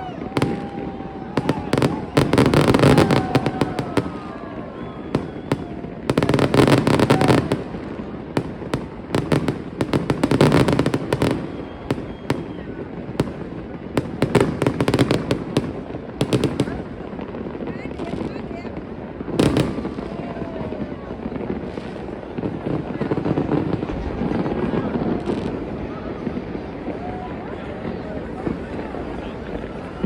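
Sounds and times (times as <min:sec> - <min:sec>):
fireworks crackling bangs: 0:00.0 - 0:30.0.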